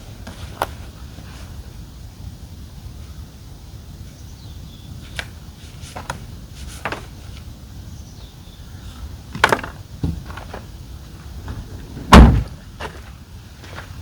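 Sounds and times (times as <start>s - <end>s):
steady low rumble: 0.0s - 14.0s
tent parts clicking and knocking: 9.3s - 10.7s.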